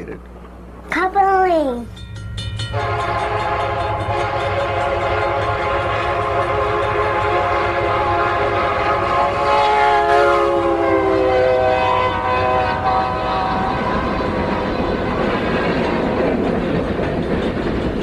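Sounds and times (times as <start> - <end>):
moving train rumble: 0.0 - 18.0
train horn chord: 2.7 - 14.8.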